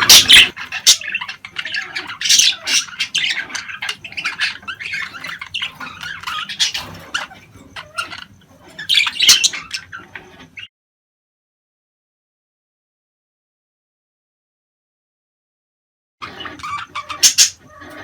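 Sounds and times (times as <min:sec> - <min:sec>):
budgerigars chattering and squawking: 0:00.0 - 0:10.7, 0:16.2 - 0:18.0.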